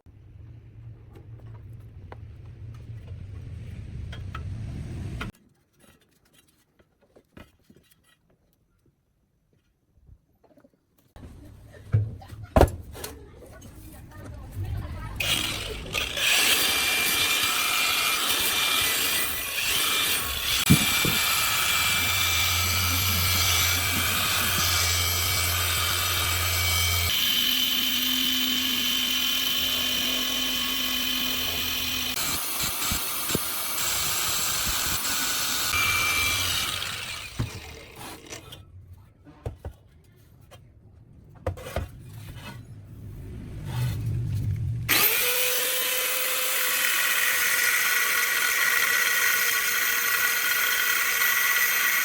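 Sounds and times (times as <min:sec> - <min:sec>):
power tool running under load: 0:15.2 - 0:38.4, 0:44.9 - 0:52.0.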